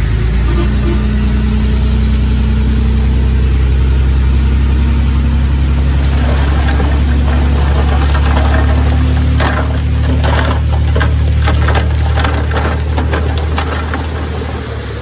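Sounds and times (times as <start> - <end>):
heavy diesel engine droning: 0.0 - 15.0
light rattle: 5.6 - 15.0.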